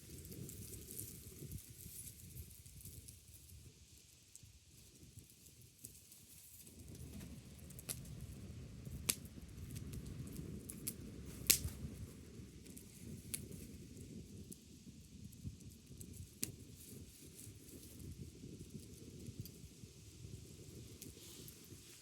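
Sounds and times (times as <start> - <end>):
fire crackles and pops: 0.0 - 22.0
wood fire rumble: 6.7 - 22.0.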